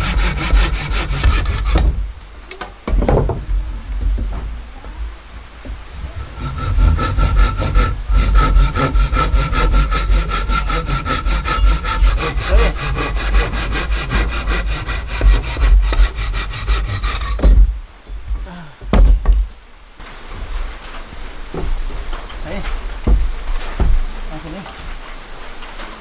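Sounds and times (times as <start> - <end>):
hand saw cutting wood: 0.0 - 2.0, 5.9 - 17.8
low thump: 0.0 - 2.2.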